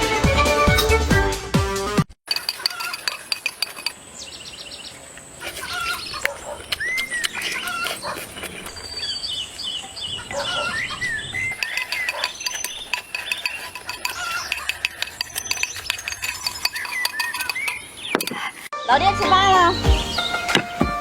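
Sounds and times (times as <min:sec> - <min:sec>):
cutlery and dishes clinking: 0:02.3 - 0:04.0, 0:05.4 - 0:09.0, 0:11.5 - 0:18.7
small birds chirping: 0:02.3 - 0:18.7.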